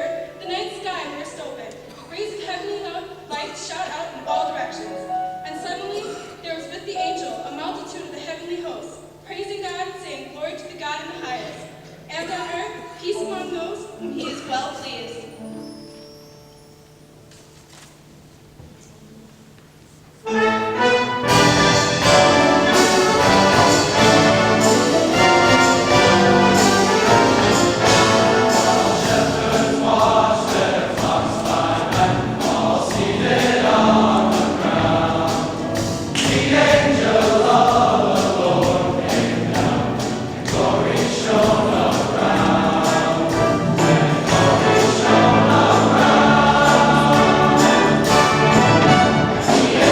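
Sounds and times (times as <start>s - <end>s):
choir singing: 20.2s - 49.9s
orchestra playing: 20.2s - 49.9s.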